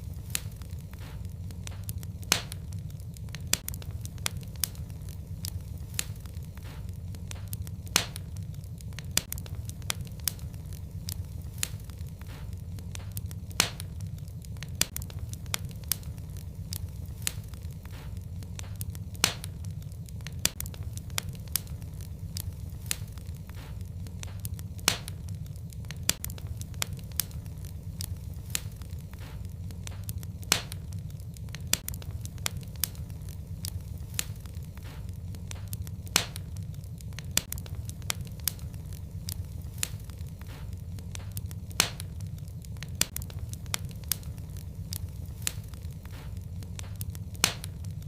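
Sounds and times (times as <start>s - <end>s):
fireplace fire crackling: 0.0s - 48.0s.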